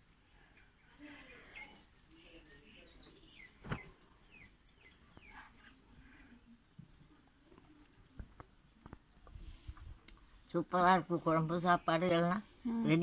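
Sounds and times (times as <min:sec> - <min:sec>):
faint bird chirps: 0:00.4 - 0:08.7.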